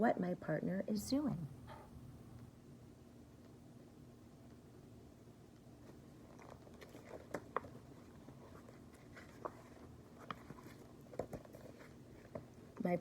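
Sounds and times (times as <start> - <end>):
paper rustling: 5.8 - 12.9.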